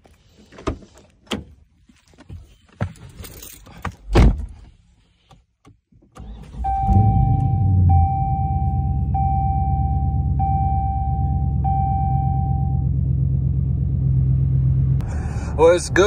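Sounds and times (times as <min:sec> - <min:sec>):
things being handled in a car: 0:00.0 - 0:07.6
high beeping tone: 0:06.8 - 0:12.8.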